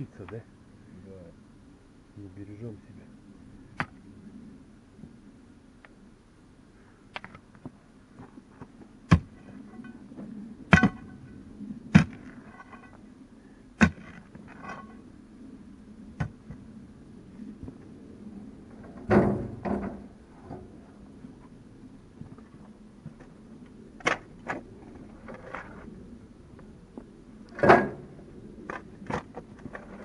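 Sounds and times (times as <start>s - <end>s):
scraping clatter of stones: 11.9s - 13.0s, 13.8s - 15.0s, 24.0s - 25.9s, 28.6s - 30.0s.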